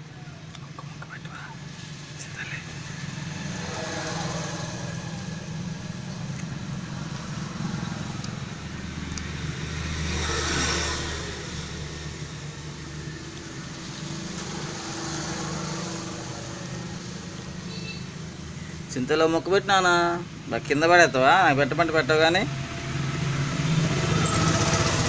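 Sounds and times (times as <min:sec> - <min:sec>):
steady low traffic hum: 0:00.0 - 0:25.0
vehicle passing: 0:01.3 - 0:25.0.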